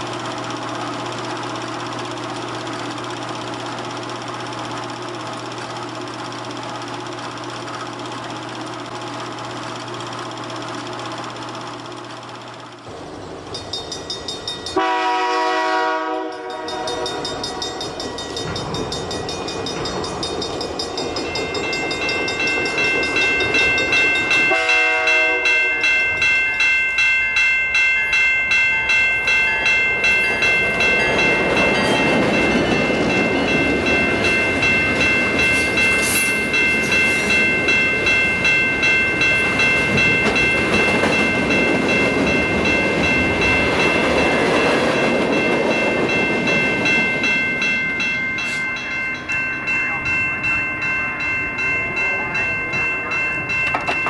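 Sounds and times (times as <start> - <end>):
diesel locomotive droning: 0.0 - 54.0
air horn chord: 14.8 - 17.2, 24.5 - 25.8
high ringing tones: 16.2 - 54.0.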